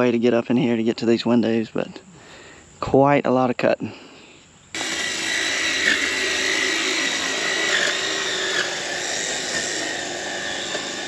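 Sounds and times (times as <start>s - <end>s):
hedge trimmer motor running: 4.8s - 11.0s.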